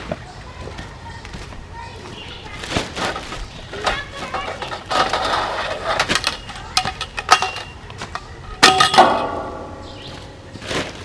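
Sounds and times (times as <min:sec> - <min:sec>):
metal parts clanking: 0:02.7 - 0:11.0
loud ringing metal clang: 0:08.6 - 0:10.5.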